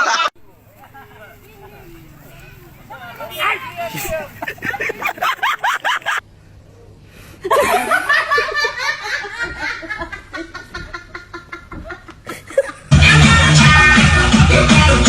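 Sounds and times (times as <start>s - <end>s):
person laughing: 3.6s - 6.2s
loud music with a beat: 12.9s - 15.0s.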